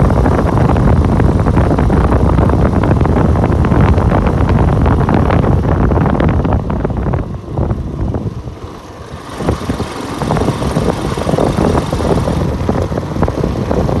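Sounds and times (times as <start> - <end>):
bike riding rumble: 0.0 - 14.0
wind buffeting microphone: 0.0 - 14.0.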